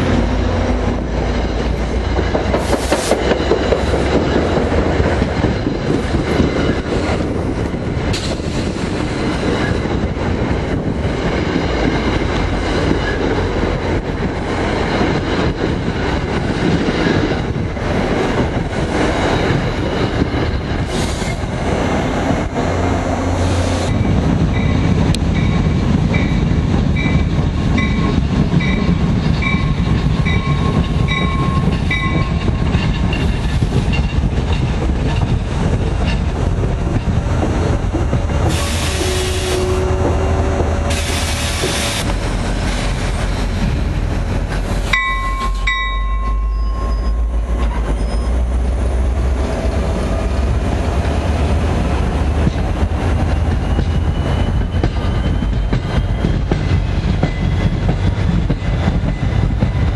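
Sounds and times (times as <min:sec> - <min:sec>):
train rumble and wheel clatter: 0:00.0 - 0:59.9
bell dinging: 0:45.0 - 0:47.3.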